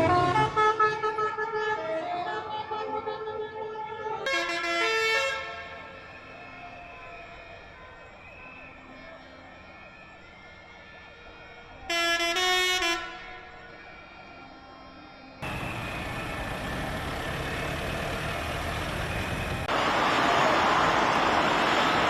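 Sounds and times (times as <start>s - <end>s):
tractor engines running: 15.4s - 22.0s.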